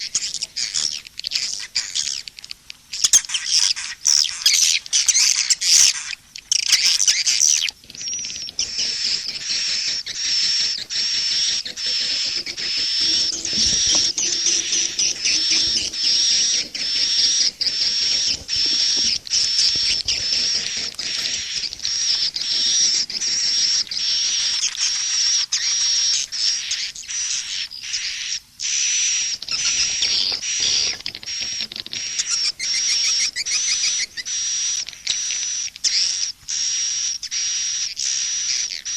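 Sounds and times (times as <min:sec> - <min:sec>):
swiftlets chattering: 0:07.8 - 0:24.0.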